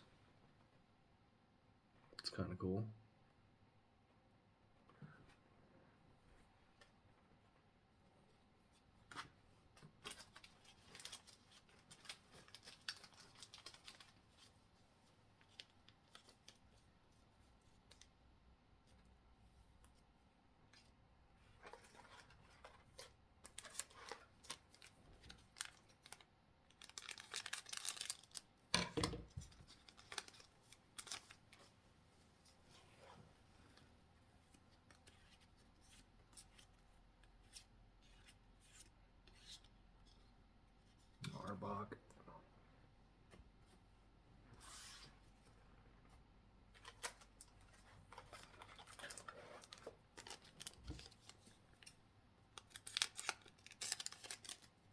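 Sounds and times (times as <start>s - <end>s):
wrapper tearing: 25.5s - 28.5s, 48.1s - 51.9s, 52.6s - 54.7s.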